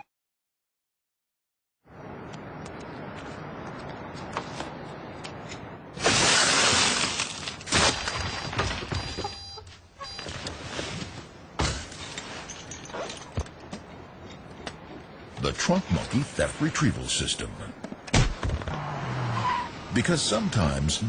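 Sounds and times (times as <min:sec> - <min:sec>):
glass shattering: 0:11.6 - 0:13.4.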